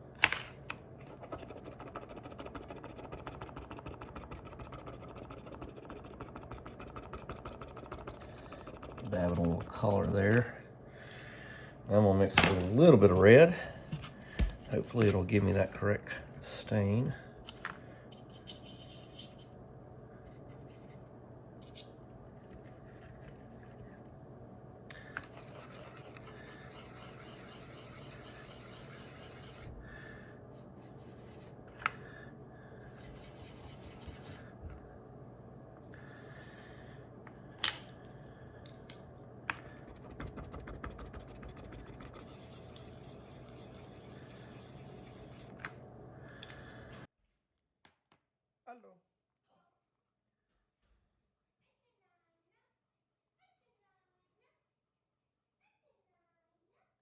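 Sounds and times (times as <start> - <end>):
faint rubbing and scratching: 1.0 - 10.4, 22.6 - 24.0, 25.2 - 29.7, 30.6 - 31.6, 32.9 - 34.5, 39.8 - 45.6.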